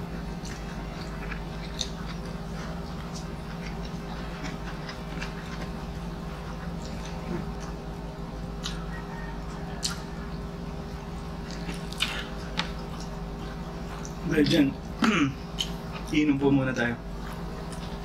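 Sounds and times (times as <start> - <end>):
quiet chewing: 0.0 - 18.0
steady low hum: 0.0 - 18.0
wet mouth clicks: 15.6 - 15.8.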